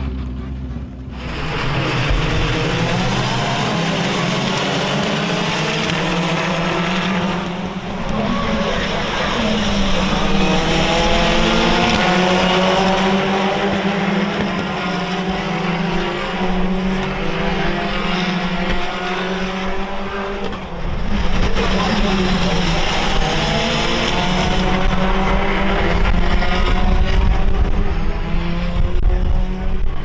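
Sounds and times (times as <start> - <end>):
race car engines revving: 0.0 - 30.0.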